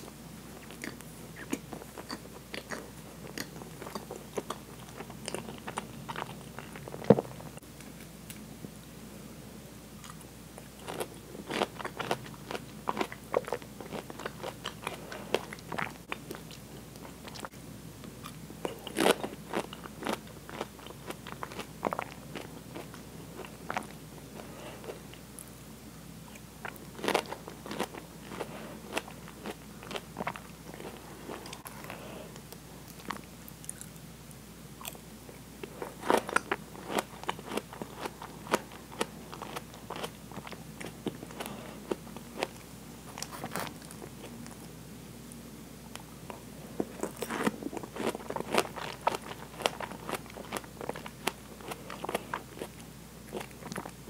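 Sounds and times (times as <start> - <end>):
biting and chewing pineapple: 46.8 - 54.0.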